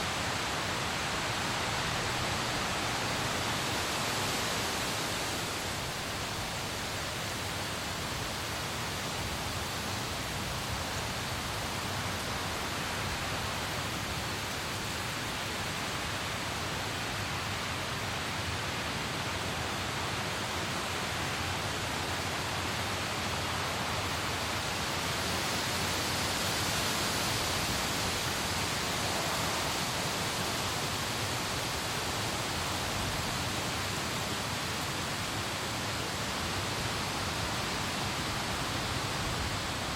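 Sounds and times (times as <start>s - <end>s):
rain hissing: 20.8s - 39.9s.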